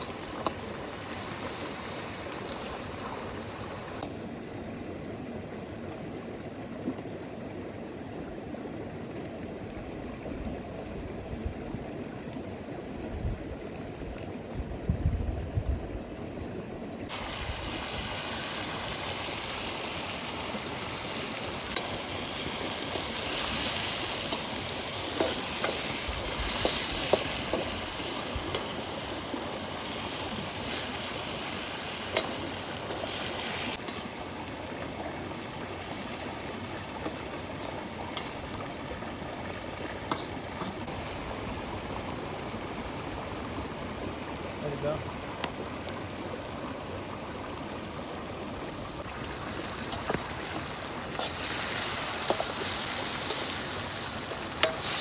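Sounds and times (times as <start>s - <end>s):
food sizzling in hot oil: 0.0s - 4.2s, 17.1s - 38.6s, 49.0s - 55.0s
flowing river: 16.0s - 55.0s
stirring clicks and scrapes: 52.2s - 52.6s, 54.3s - 55.0s.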